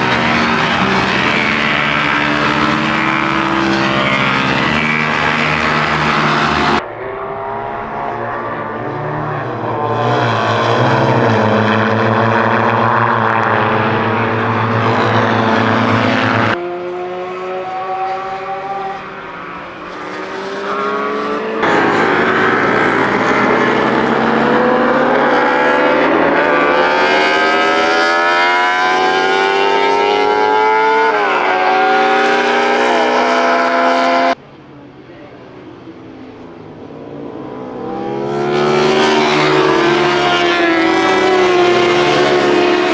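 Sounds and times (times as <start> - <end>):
racing motorcycles passing: 0.0 - 42.9.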